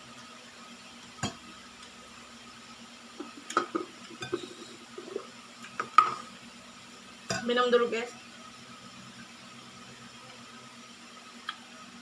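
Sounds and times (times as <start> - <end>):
dishes and utensils clinking: 3.5 - 5.2, 7.3 - 7.5.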